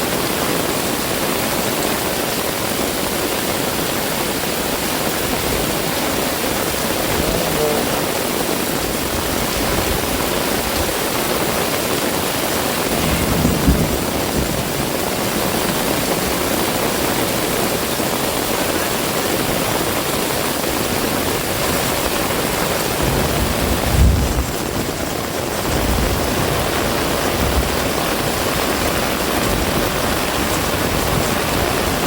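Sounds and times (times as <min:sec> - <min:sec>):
heavy rain pouring: 0:00.0 - 0:32.0.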